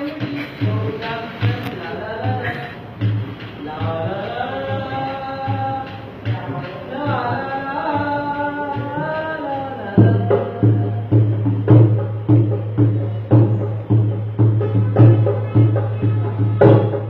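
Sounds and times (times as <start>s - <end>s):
hand drum: 0.0s - 17.0s
person singing: 3.6s - 11.4s.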